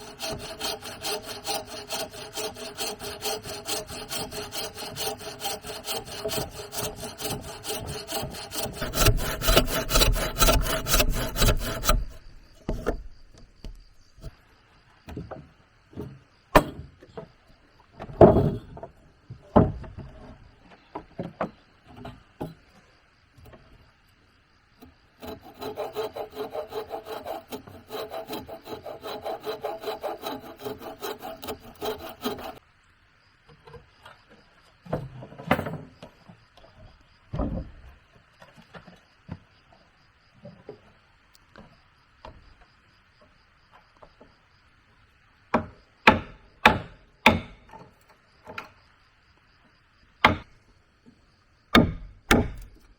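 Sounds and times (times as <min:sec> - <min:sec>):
hand saw cutting wood: 0:00.0 - 0:14.4, 0:25.2 - 0:32.6, 0:51.8 - 0:52.8
wood knocking on wood: 0:05.8 - 0:14.3, 0:18.0 - 0:20.2, 0:50.2 - 0:50.5, 0:51.8 - 0:52.8.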